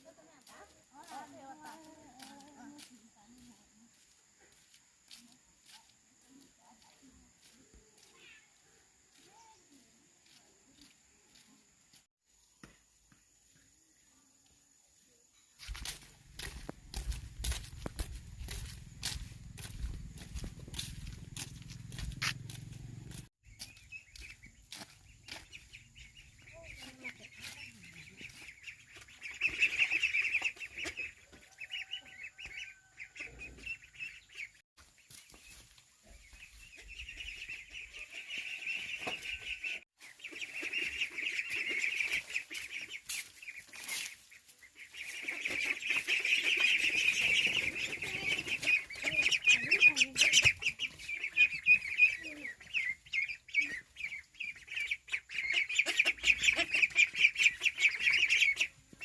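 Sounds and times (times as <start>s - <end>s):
ducklings peeping: 16.4s - 59.0s.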